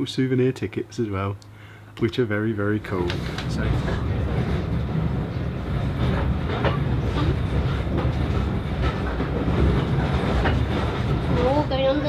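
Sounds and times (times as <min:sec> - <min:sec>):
train wheels rumbling on rails: 0:02.6 - 0:12.0.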